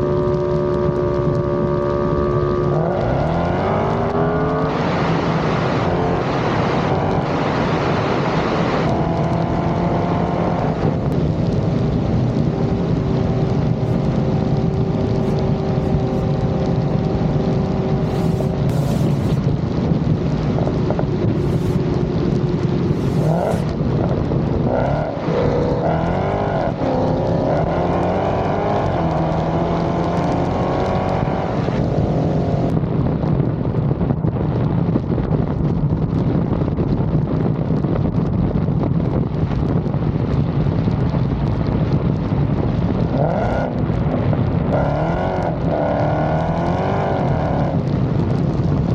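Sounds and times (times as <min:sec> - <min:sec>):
car engine accelerating: 0:00.0 - 0:33.0, 0:43.0 - 0:48.9.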